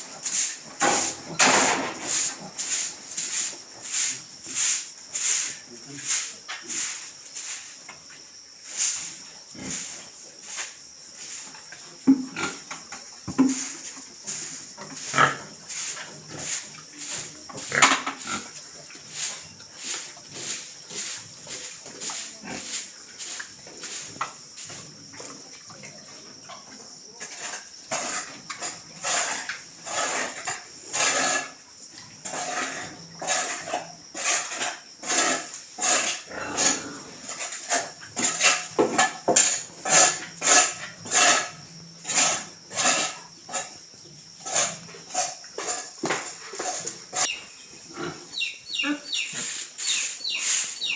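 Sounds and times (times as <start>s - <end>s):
steady high hiss: 0.0s - 25.1s, 28.1s - 50.9s
pigs grunting and squealing: 32.2s - 38.8s, 46.6s - 49.6s.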